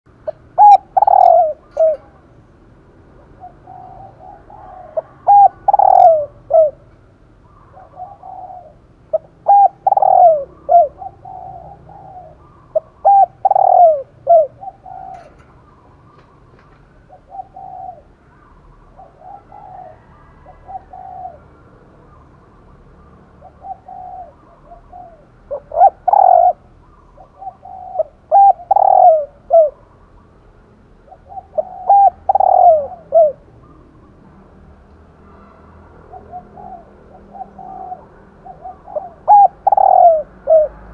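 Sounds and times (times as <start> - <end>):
bird calls with gliding notes: 0.3 - 2.2, 3.3 - 6.8, 7.4 - 21.5, 22.1 - 30.0, 31.1 - 34.2, 36.0 - 40.8.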